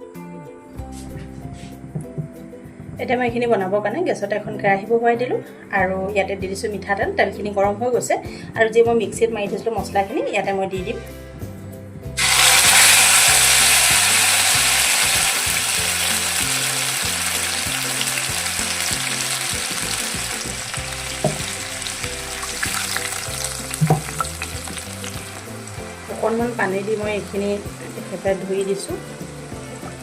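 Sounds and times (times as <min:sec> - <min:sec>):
paste sizzling in hot oil: 0:12.2 - 0:30.0.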